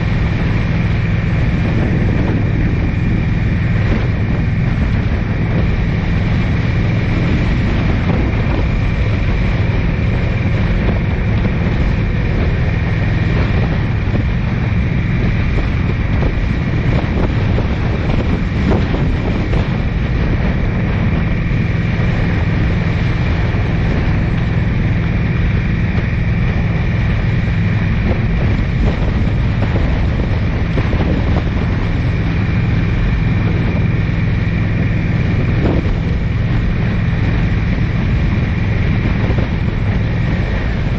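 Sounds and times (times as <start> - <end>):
car engine and road drone: 0.0 - 40.9
wind noise on microphone: 0.0 - 40.9.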